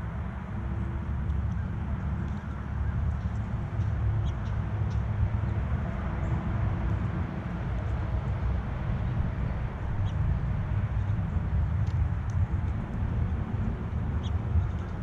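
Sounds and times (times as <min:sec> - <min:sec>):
low outdoor rumble: 0:00.0 - 0:15.0
small birds chirping: 0:04.2 - 0:05.6, 0:13.9 - 0:15.0.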